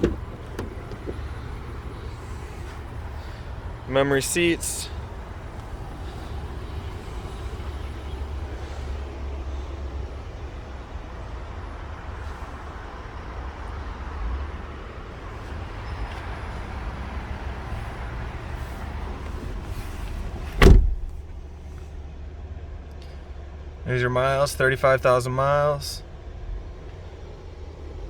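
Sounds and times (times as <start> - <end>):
car door shutting: 0.0 - 3.4, 18.1 - 21.6
steady low rumble: 20.4 - 22.4.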